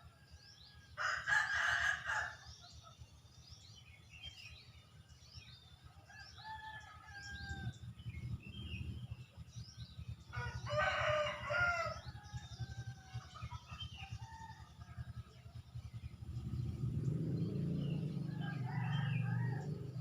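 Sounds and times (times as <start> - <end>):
small birds chirping: 0.0 - 20.0
rooster crowing: 1.0 - 2.4, 10.4 - 13.2, 18.0 - 20.0
low rumble: 7.3 - 20.0.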